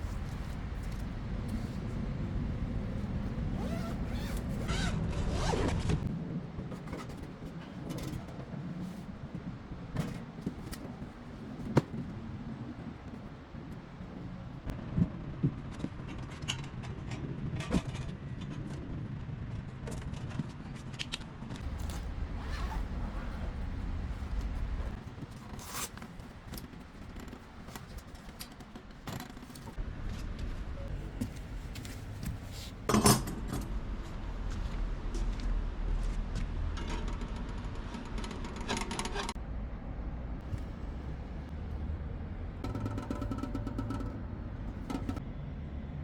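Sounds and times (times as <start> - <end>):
metal clatter: 42.6 - 45.2.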